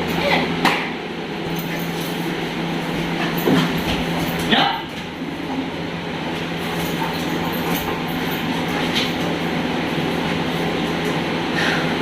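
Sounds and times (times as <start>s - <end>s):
machine running with low hum: 0.0s - 12.0s.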